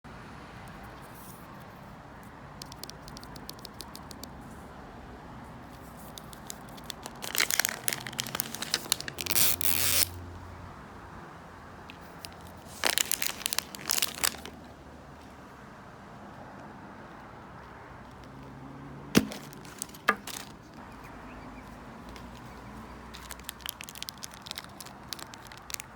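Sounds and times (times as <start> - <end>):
plastic wrapping tearing and crinkling: 6.1 - 10.2, 12.2 - 14.6, 19.2 - 20.8, 22.3 - 25.9.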